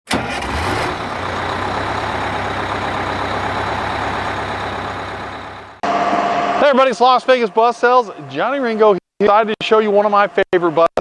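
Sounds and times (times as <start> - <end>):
diesel vehicle engine running: 0.1 - 6.1.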